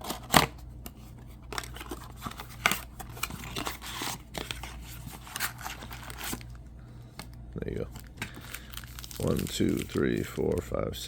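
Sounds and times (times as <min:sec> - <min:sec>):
packaging tearing and crinkling: 0:01.5 - 0:06.6, 0:07.7 - 0:10.6.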